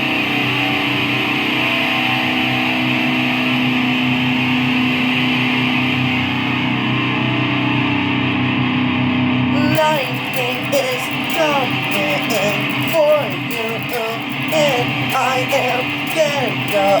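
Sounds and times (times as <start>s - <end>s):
guitar holding a chord: 9.5s - 17.0s.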